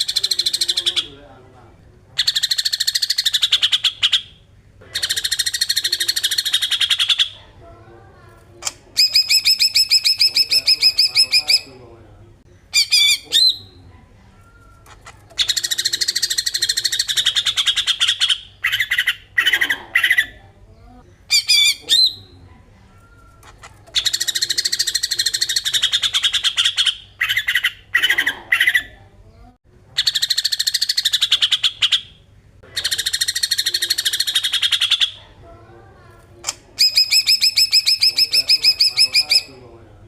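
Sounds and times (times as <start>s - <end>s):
bird song buzzy rattling phrases: 0.0s - 1.5s, 2.2s - 7.4s, 8.9s - 11.8s, 14.9s - 20.4s, 23.6s - 29.4s, 30.0s - 35.2s, 36.8s - 39.7s
bird chirps: 9.0s - 11.7s, 36.8s - 39.6s.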